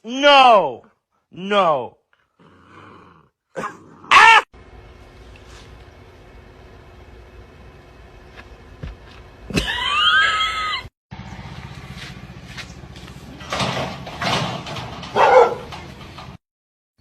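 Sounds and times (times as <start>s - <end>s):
steady low hum: 4.6s - 13.6s
dog barking: 15.1s - 15.7s.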